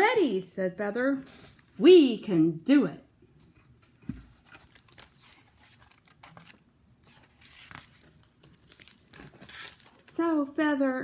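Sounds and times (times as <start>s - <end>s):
soft thump: 4.0s - 4.3s
paper pages rustling: 4.1s - 10.2s.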